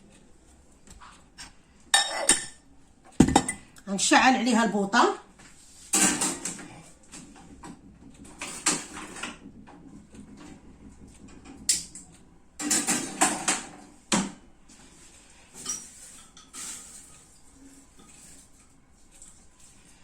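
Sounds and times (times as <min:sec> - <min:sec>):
pan and utensils clinking: 0:05.9 - 0:06.6, 0:12.6 - 0:13.8, 0:15.6 - 0:18.7.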